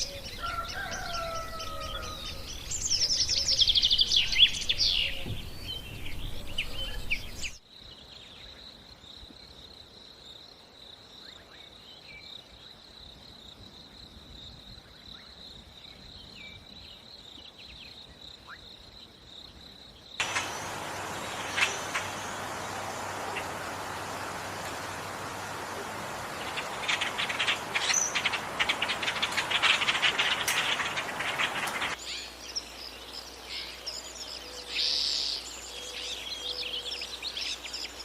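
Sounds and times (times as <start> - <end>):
birds chirping and trilling: 0.0 - 7.6, 20.2 - 38.0
noisy outdoor sound: 0.0 - 38.0
high-pitched insect trill: 20.2 - 32.1.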